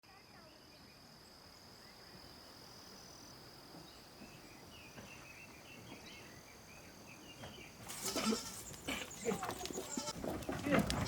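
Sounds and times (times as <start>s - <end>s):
bird chirps: 0.4s - 7.8s.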